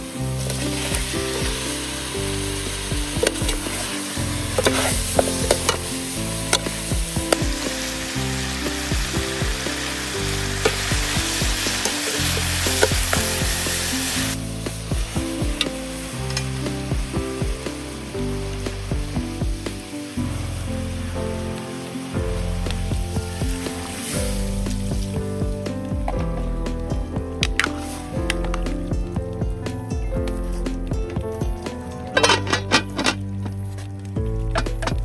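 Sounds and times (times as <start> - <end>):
food sizzling in a pot: 0.0 - 35.0
metal ladle scraping a pot: 0.4 - 7.8, 11.6 - 14.2.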